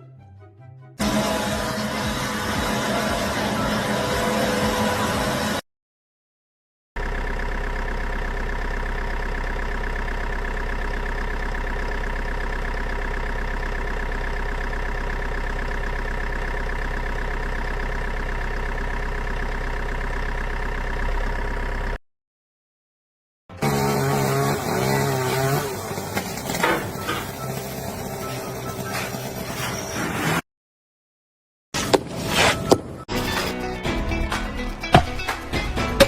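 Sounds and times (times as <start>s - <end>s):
engine running steadily: 1.0s - 5.6s, 7.0s - 22.0s, 23.6s - 30.0s.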